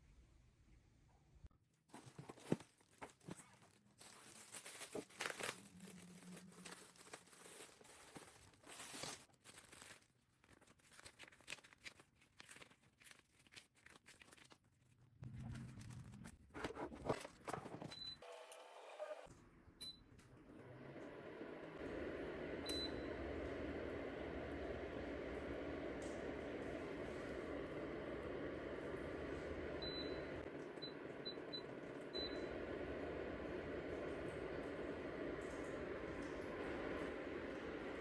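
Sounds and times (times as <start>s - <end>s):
faint rustling and crinkling: 1.8s - 17.8s.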